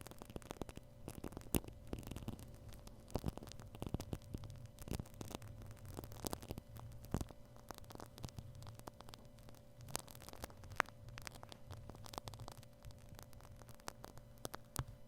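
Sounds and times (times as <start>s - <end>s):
faint steady hum: 0.0s - 15.0s
shaving cream crackling on microphone: 0.0s - 15.0s.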